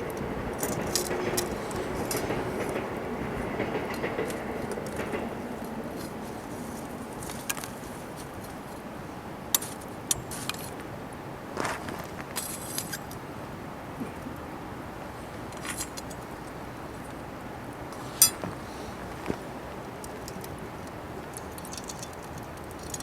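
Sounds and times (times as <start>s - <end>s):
steady low hiss: 0.0s - 23.0s
metal cooking gear clinking: 21.3s - 23.0s.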